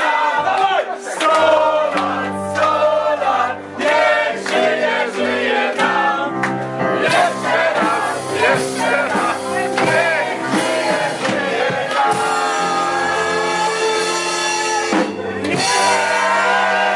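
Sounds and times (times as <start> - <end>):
voices singing together: 0.0 - 16.9.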